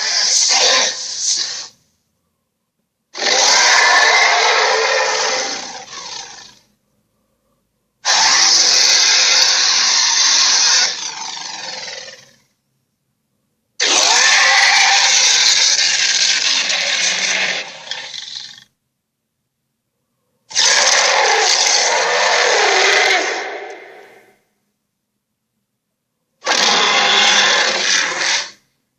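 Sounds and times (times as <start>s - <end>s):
giant ape roars: 0.0s - 1.7s, 3.2s - 6.7s, 8.0s - 12.4s, 13.8s - 18.7s, 20.5s - 24.4s, 26.4s - 28.6s.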